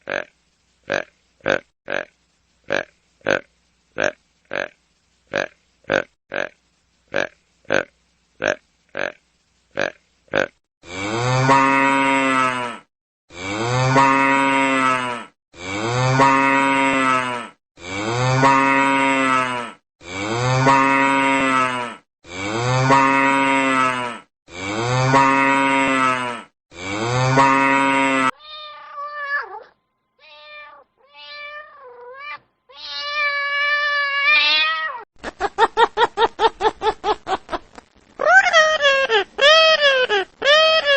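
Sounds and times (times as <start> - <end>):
cow mooing: 10.9 - 28.4
cat meowing: 28.4 - 35.0.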